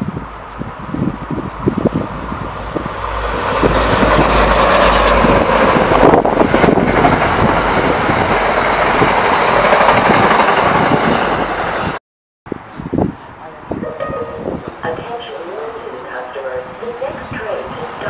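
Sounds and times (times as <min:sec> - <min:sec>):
diesel locomotive passing: 0:00.0 - 0:12.0, 0:13.2 - 0:18.0
steel wheels rumbling on rail: 0:00.0 - 0:12.0.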